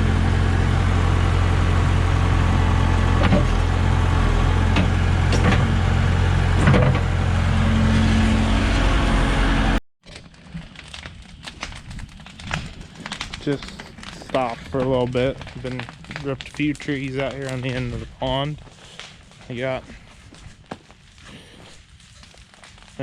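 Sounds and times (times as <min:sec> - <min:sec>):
diesel engine droning: 0:00.0 - 0:09.8
faint clicks and crackles: 0:10.0 - 0:23.0.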